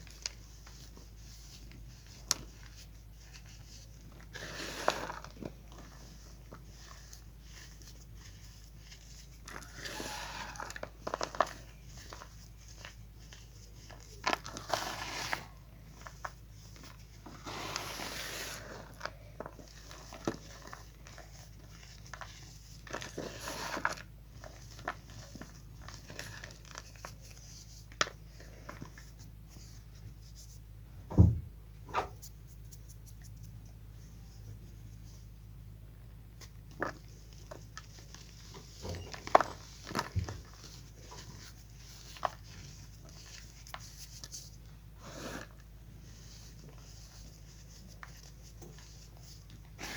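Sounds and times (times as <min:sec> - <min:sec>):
chalk crumbling and crackling: 0:00.0 - 0:30.6.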